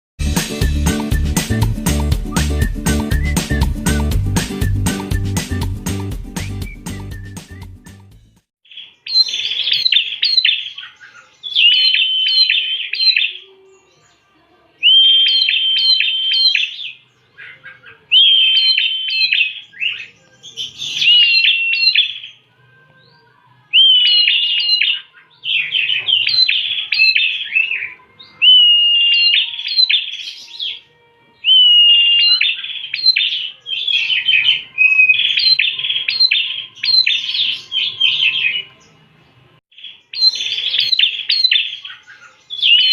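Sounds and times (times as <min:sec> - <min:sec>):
bird singing high chirps: 0:08.6 - 0:39.0, 0:39.7 - 0:42.9.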